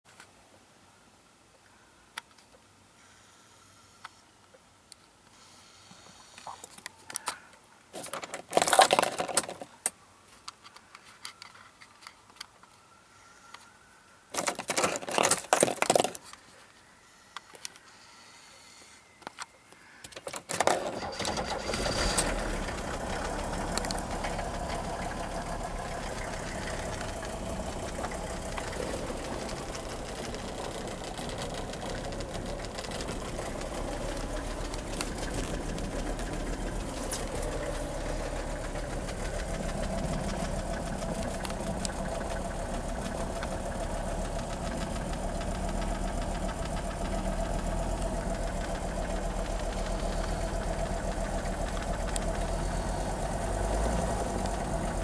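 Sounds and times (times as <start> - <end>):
diesel engine starting and idling: 20.5 - 55.0.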